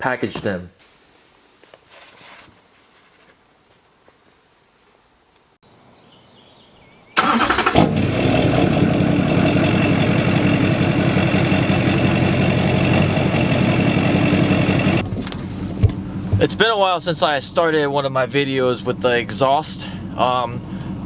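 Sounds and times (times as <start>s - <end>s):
diesel engine starting and idling: 7.2s - 21.0s.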